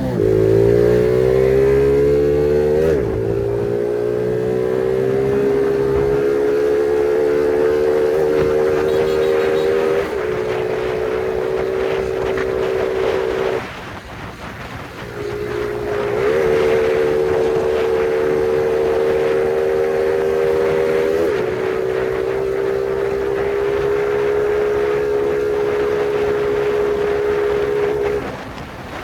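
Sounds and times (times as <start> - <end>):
moped engine running: 0.0 - 29.0.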